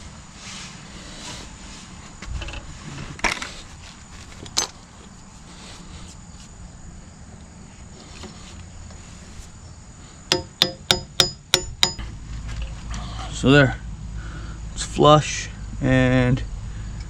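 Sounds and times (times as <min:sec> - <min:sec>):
low steady rumble: 0:08.5 - 0:17.0
sharp metal knocks: 0:10.3 - 0:12.2.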